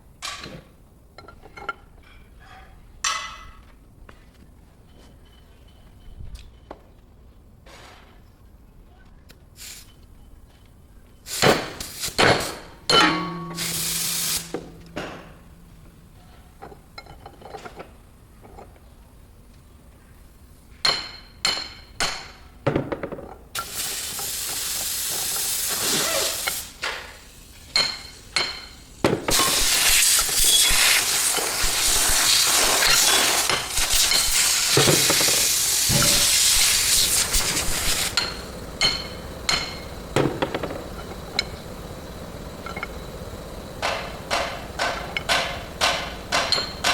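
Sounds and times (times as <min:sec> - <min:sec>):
metal clanks and hammer strikes: 0:00.2 - 0:03.7, 0:11.5 - 0:17.9, 0:20.8 - 0:23.4, 0:27.7 - 0:41.6, 0:43.8 - 0:46.9
loud steady hiss: 0:09.5 - 0:10.2, 0:11.2 - 0:17.3, 0:23.5 - 0:46.9.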